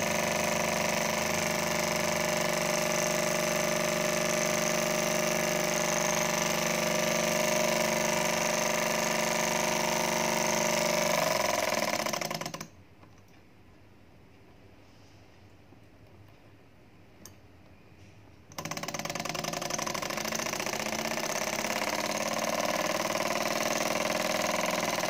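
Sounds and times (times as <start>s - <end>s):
model engine humming and whirring: 0.0s - 12.6s, 18.6s - 25.0s.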